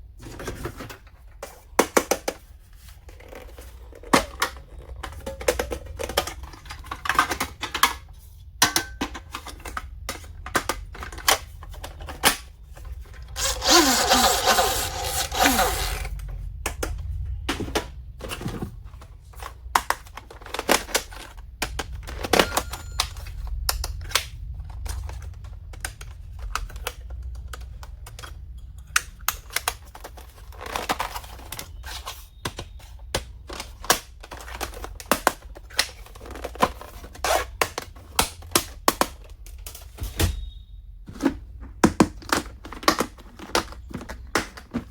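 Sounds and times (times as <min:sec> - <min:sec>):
packaging rustling: 0:11.0 - 0:16.3.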